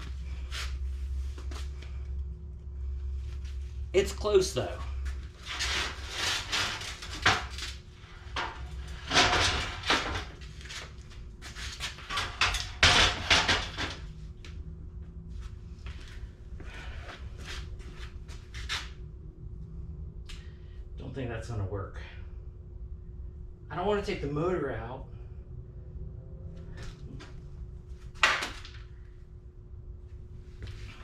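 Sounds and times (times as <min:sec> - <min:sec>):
steady low hum: 0:00.0 - 0:31.0
knocks and scraping on metal: 0:05.4 - 0:10.4, 0:11.8 - 0:14.1.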